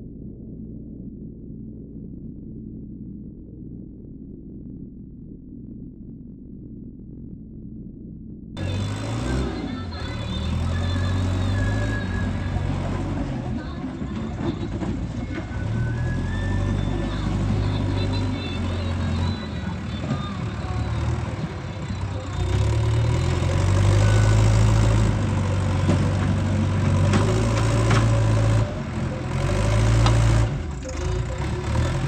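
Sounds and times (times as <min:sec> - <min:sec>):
heavy machinery diesel engine running: 0:08.6 - 0:32.0.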